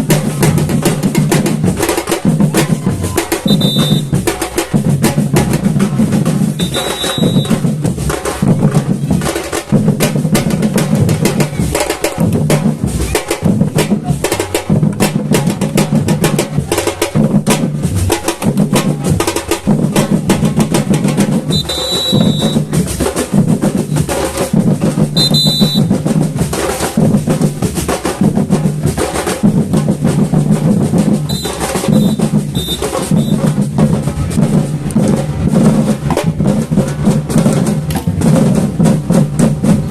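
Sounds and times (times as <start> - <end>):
deep bass drums: 0.0 - 39.9
samba percussion ensemble: 0.0 - 39.9
short high tones: 6.6 - 7.5, 25.2 - 25.9, 31.3 - 33.5.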